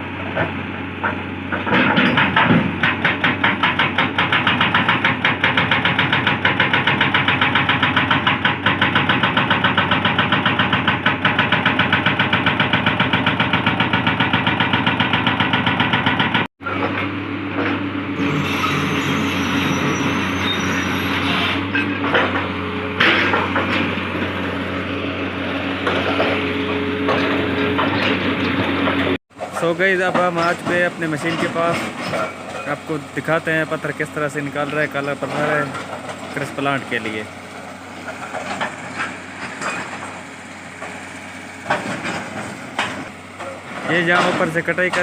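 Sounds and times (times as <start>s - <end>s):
diesel engine running: 0.0s - 45.0s
hydraulic breaker hammering rock: 0.3s - 20.7s.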